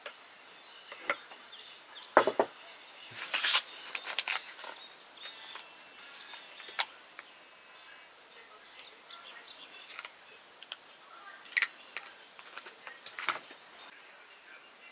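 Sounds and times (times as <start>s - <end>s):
faint birds chirping: 0.3s - 13.9s
rustling: 3.1s - 8.1s.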